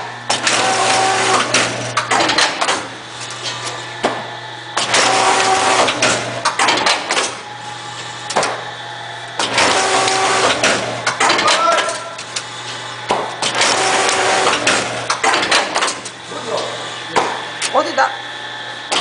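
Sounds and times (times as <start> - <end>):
steady motor hum: 0.0 - 19.0
machine clattering and clicking: 1.3 - 2.9, 4.8 - 7.4, 9.4 - 12.4, 13.4 - 16.1.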